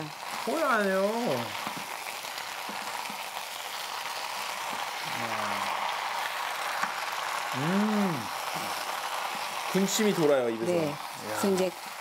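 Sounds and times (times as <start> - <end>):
food sizzling in a pan: 0.0 - 12.0
wooden spatulas stirring: 1.5 - 3.4, 8.3 - 10.3.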